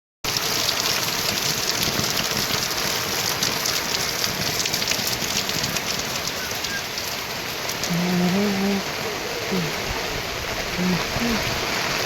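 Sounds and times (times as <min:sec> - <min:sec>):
heavy rain falling: 0:00.3 - 0:12.0.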